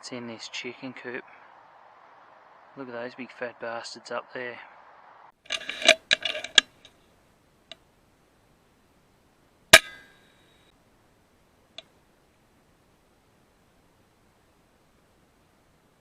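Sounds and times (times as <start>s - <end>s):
clicks and knocks: 5.5s - 6.9s
air rifle shot: 9.8s - 10.1s.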